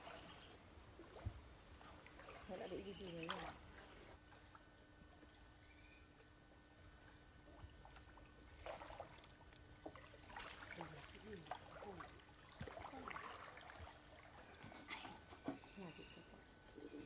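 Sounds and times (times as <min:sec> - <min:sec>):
paddle splashes in water: 0:01.0 - 0:04.6, 0:07.5 - 0:15.6
faint chirps: 0:05.6 - 0:06.4, 0:12.7 - 0:17.0.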